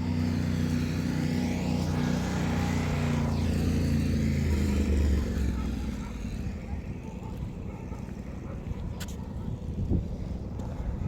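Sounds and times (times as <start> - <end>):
motorcycle engine passing: 0.0 - 7.8.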